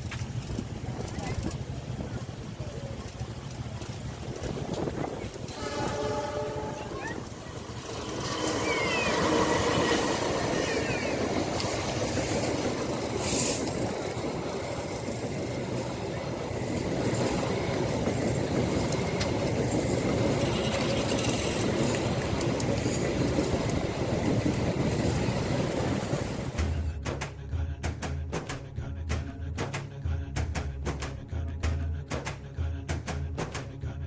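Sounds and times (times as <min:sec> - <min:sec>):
train wagons rumbling on rails: 0:00.0 - 0:27.0.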